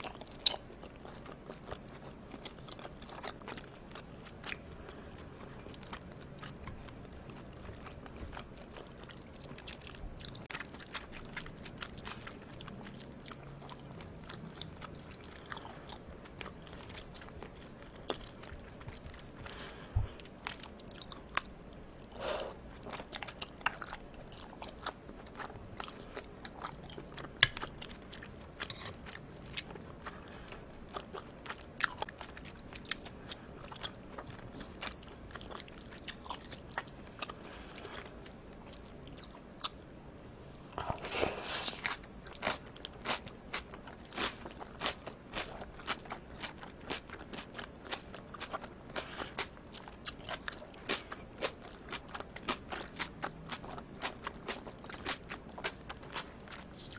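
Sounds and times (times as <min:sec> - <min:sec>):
wet chewing mouth sounds: 0:00.0 - 0:39.8, 0:40.5 - 0:56.9.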